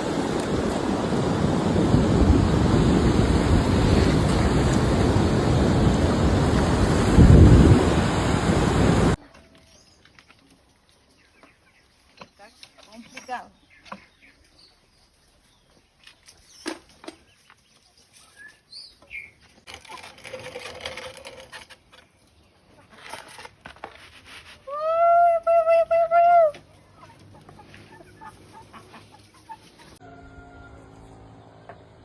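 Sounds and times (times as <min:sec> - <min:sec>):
chickens clucking: 0:25.9 - 0:30.8
rooster crowing: 0:30.0 - 0:31.1.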